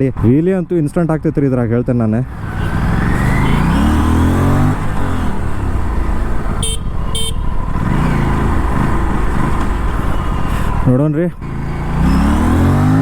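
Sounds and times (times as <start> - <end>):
motorcycle engine running: 2.3 - 13.0
horn toots: 2.4 - 5.4, 6.5 - 8.2.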